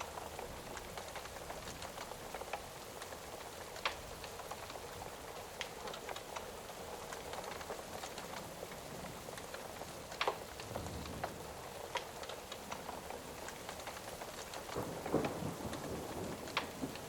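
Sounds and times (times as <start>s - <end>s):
fire crackling and popping: 0.0s - 17.0s
steady rain hiss: 0.0s - 17.0s.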